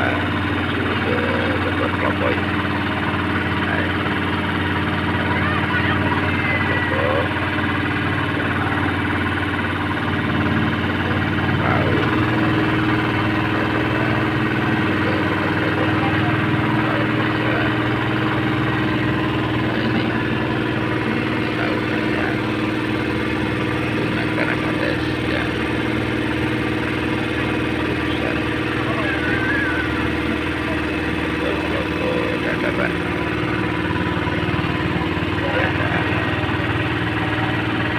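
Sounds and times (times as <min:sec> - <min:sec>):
ferry boat engine running: 0:00.0 - 0:37.9.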